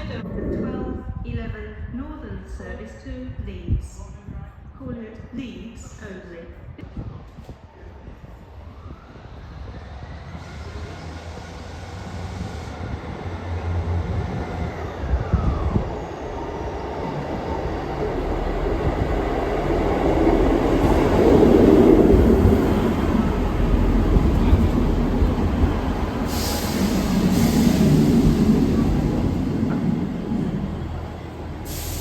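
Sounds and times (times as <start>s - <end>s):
train approaching: 7.9s - 32.0s.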